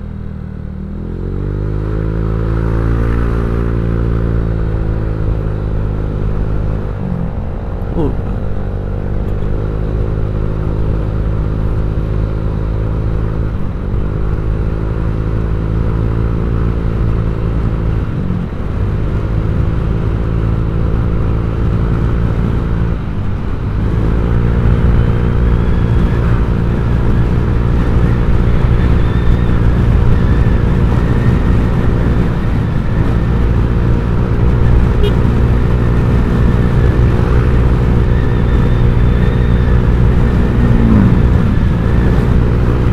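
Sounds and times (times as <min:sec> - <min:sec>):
scooter engine running: 0:34.4 - 0:42.9.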